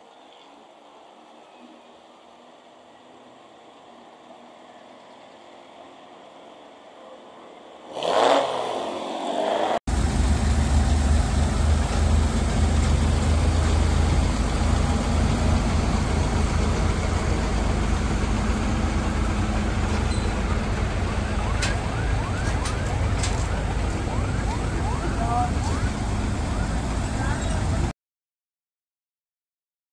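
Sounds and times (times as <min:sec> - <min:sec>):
car engine revving and rumbling: 0:07.9 - 0:27.9.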